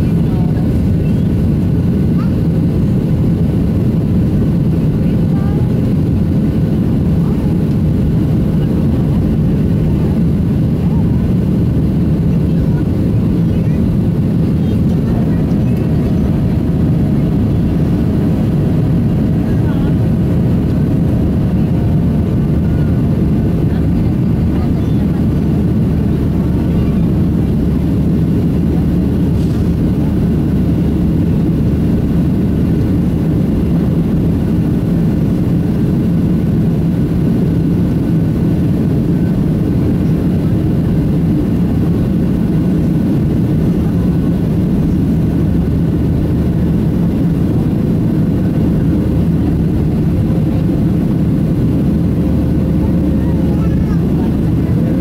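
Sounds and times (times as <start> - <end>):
airflow: 0.0 - 55.0
jet engines rumbling: 0.0 - 55.0.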